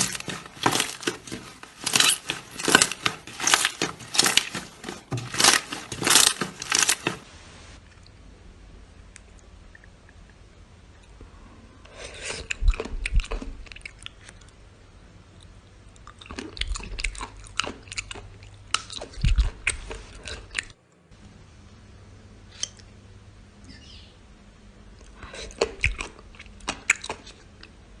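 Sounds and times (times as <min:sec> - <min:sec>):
slime crackling and popping: 0:00.0 - 0:07.3.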